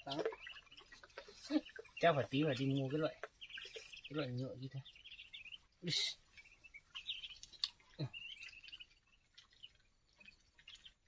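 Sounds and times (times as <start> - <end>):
birds chirping: 0.0 - 11.0
faint clicks: 7.3 - 7.8.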